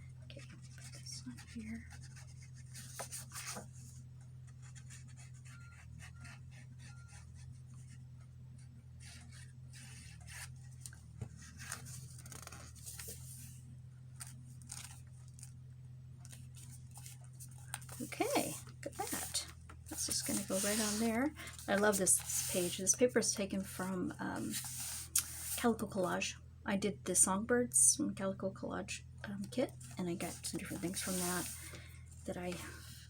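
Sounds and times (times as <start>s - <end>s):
steady low hum: 0.0s - 33.0s
paper rustling and rubbing: 0.4s - 3.9s, 9.0s - 13.6s, 14.2s - 15.5s, 16.2s - 23.0s, 23.7s - 25.7s, 29.8s - 31.8s, 32.4s - 33.0s.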